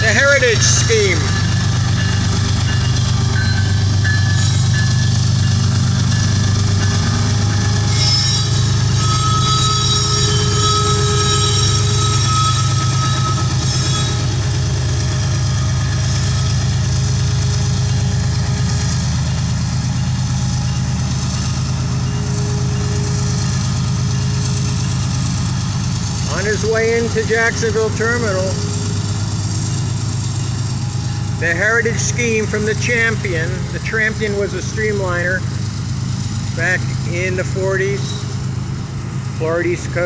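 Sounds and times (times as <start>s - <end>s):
freight train wheels rumbling: 0.0s - 40.0s
high-pitched wheel squeal: 3.4s - 5.3s, 7.0s - 14.7s.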